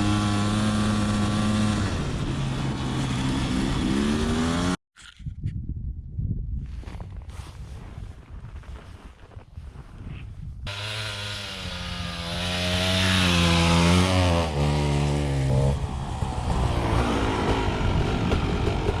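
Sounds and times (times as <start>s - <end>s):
dirt bike engine accelerating: 0.0s - 4.8s, 10.7s - 19.0s.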